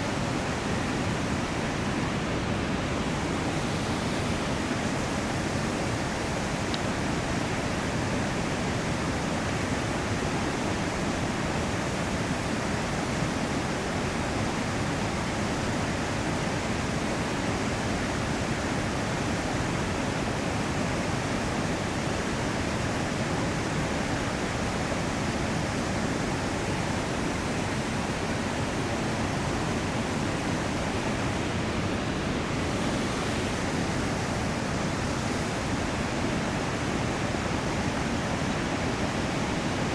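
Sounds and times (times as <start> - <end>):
river rapids rushing: 21.7 - 39.9.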